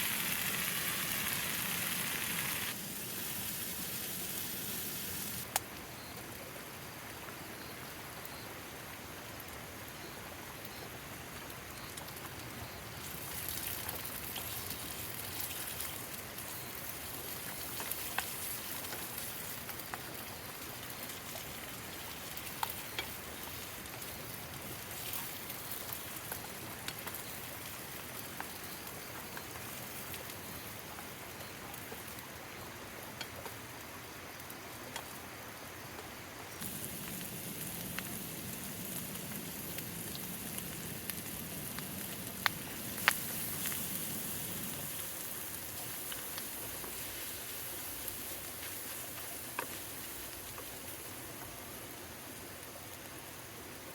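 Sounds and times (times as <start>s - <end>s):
food sizzling in a pan: 0.0s - 5.5s, 13.0s - 30.8s, 36.6s - 51.4s
steady rain: 0.0s - 53.9s.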